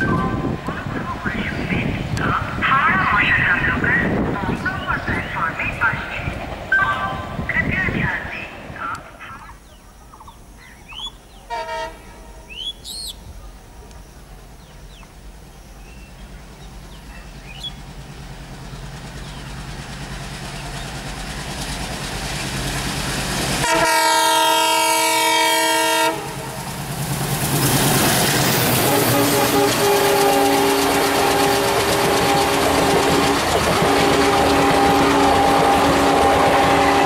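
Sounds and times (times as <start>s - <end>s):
train rumbling: 0.0s - 37.0s
birds chirping faintly: 8.4s - 11.6s, 12.4s - 19.8s
locomotive horn blast: 11.4s - 12.5s, 23.6s - 26.6s, 28.8s - 37.0s.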